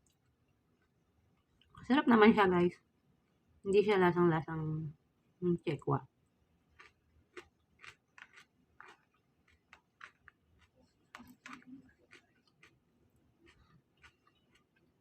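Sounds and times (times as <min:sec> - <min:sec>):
person chewing: 0:06.7 - 0:15.0.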